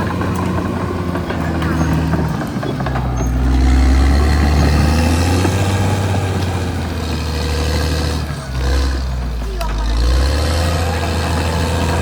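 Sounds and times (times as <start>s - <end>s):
bulldozer diesel engine drone: 0.0s - 12.0s.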